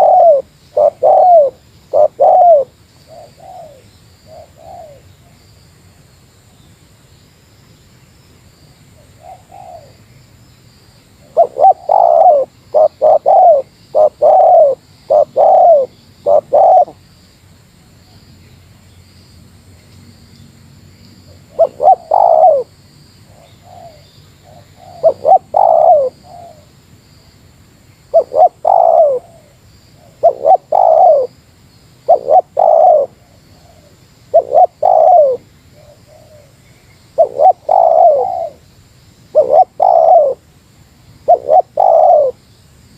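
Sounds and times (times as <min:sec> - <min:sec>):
dove cooing: 0:00.0 - 0:05.1, 0:09.0 - 0:10.0, 0:11.2 - 0:17.0, 0:21.5 - 0:22.7, 0:23.3 - 0:26.7, 0:28.1 - 0:31.4, 0:32.0 - 0:36.6, 0:37.2 - 0:38.6, 0:39.3 - 0:40.4, 0:41.3 - 0:42.4
faint high hiss: 0:00.0 - 0:42.9.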